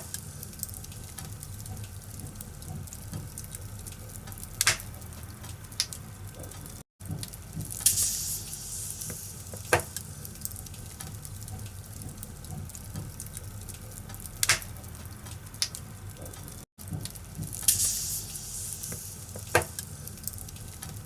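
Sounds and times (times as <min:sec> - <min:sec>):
firewood crackling and popping: 0:00.0 - 0:21.0.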